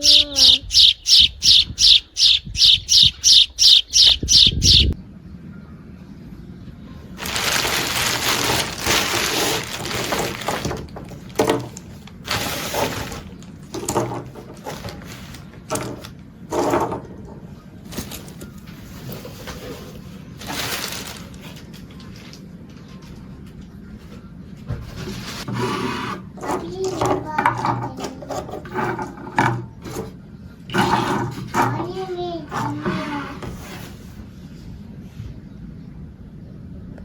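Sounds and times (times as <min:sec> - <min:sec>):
bird chirping rapidly: 0:00.0 - 0:05.0.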